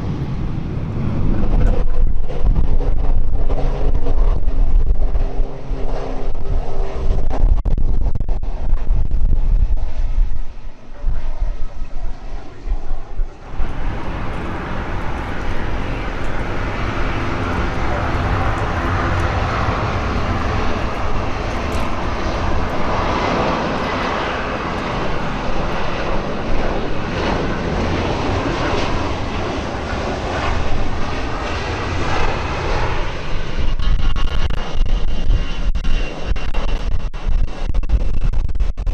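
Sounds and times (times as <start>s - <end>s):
aircraft engines running: 13.4s - 33.9s.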